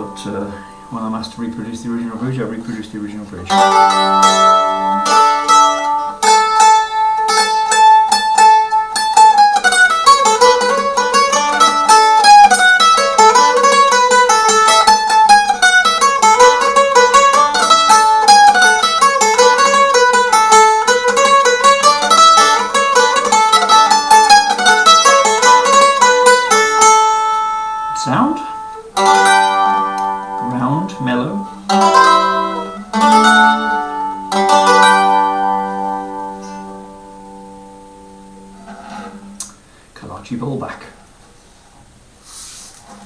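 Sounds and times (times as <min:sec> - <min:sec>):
mandolin playing: 0:00.0 - 0:39.8.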